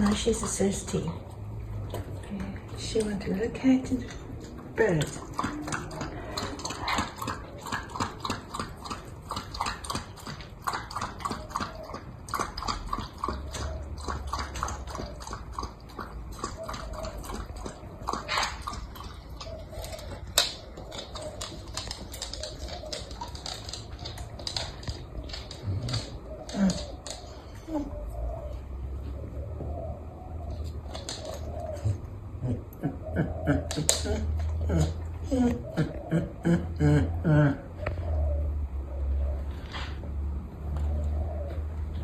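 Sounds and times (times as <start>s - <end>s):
dog lapping water: 4.0s - 27.3s.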